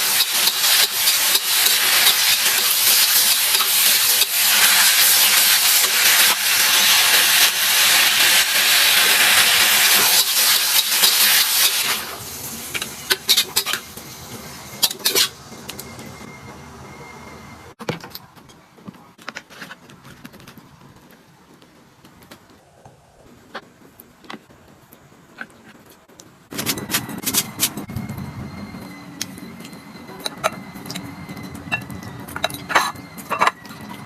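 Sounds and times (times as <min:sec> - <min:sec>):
food sizzling in a wok: 0:00.0 - 0:15.6.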